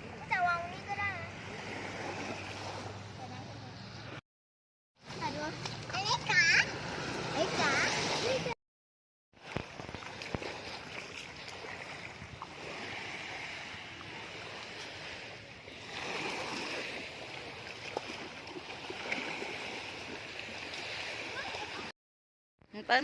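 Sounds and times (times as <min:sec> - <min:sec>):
small waves washing ashore: 0:00.0 - 0:04.2, 0:05.0 - 0:08.6, 0:09.4 - 0:21.9.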